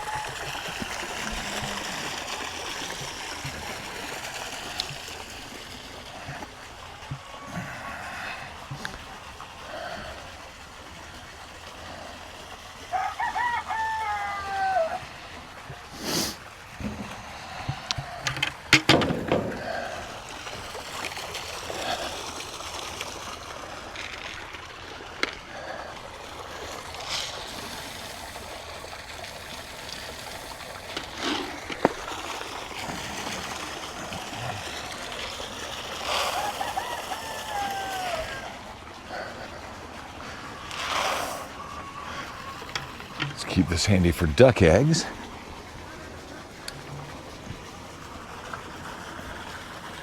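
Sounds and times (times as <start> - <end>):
rooster crowing: 12.9 - 15.1, 36.1 - 38.6.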